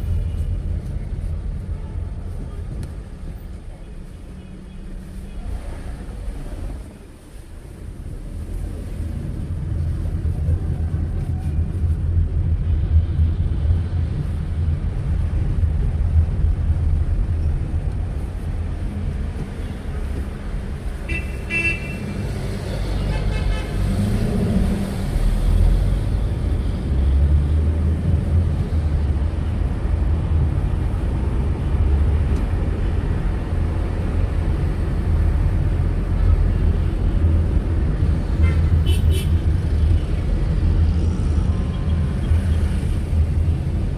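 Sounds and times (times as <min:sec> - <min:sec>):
traffic rumble: 0:00.0 - 0:43.9
car horn tooting: 0:21.1 - 0:22.0.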